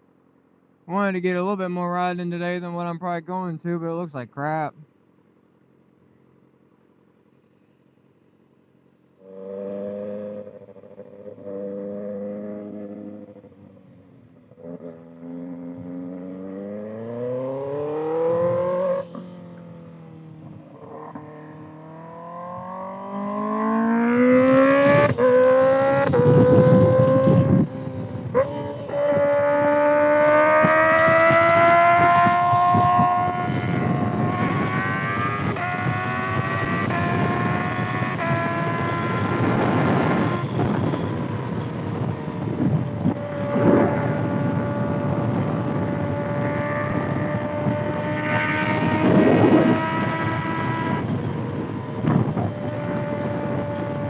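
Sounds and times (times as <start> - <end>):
motorcycle engine accelerating: 8.4 - 54.0
wind noise: 22.4 - 54.0.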